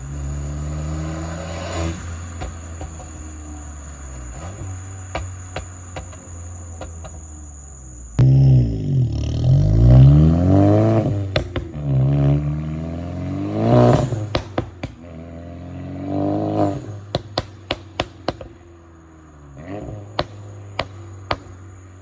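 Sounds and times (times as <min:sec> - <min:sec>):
car engine revving: 0:00.0 - 0:22.0
exhaust cracks: 0:01.1 - 0:15.2, 0:16.3 - 0:18.6, 0:19.6 - 0:21.8
car engine idling: 0:02.2 - 0:10.2, 0:17.0 - 0:22.0.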